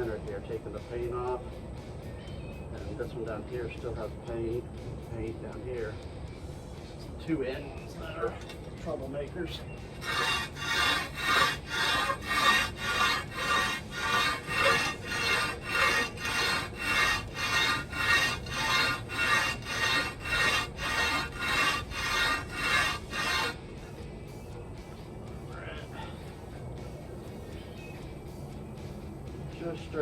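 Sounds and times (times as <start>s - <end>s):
metal rasping on sandpaper: 10.0s - 23.6s.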